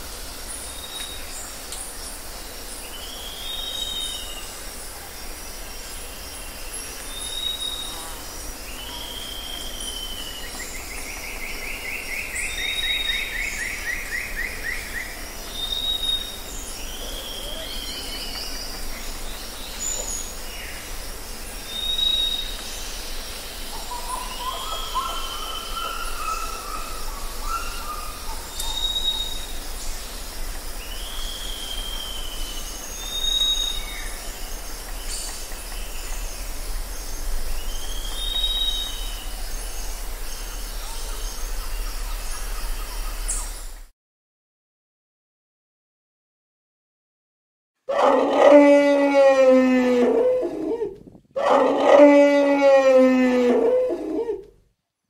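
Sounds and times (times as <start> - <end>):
outdoor background noise: 0.0 - 43.9, 47.8 - 55.0
low warbling bird phrase: 47.9 - 54.5.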